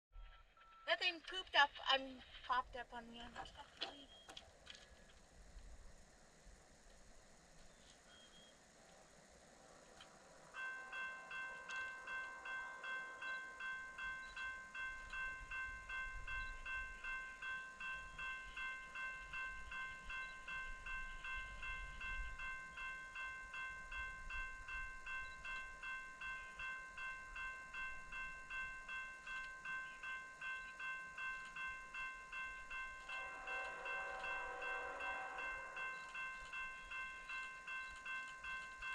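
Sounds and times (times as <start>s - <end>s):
railroad crossing bell ringing: 10.2s - 38.9s
low rumble: 32.6s - 37.7s.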